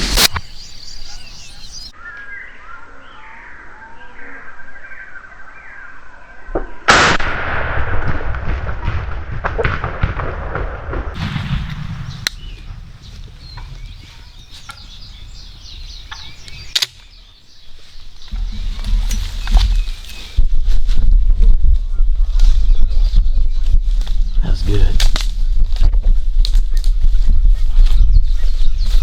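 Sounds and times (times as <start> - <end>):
shotgun blast: 0.0 - 0.6, 6.9 - 13.8
rustling: 11.2 - 24.3
sharp clicks: 16.1 - 17.1.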